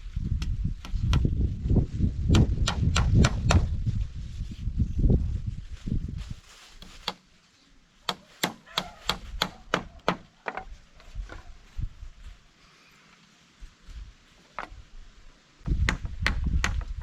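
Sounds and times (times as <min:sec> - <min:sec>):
sharp wood chops: 0:02.3 - 0:03.7, 0:08.1 - 0:10.3, 0:15.8 - 0:16.9.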